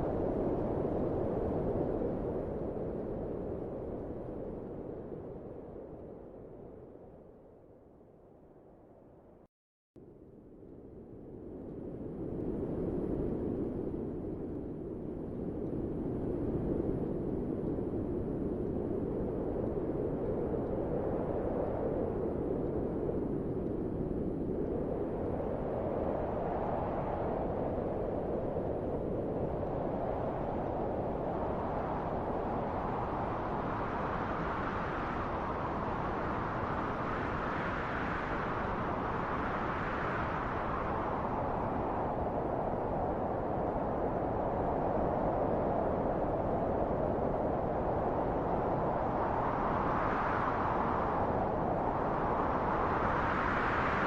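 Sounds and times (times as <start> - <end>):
wind blowing: 11.2 - 54.0.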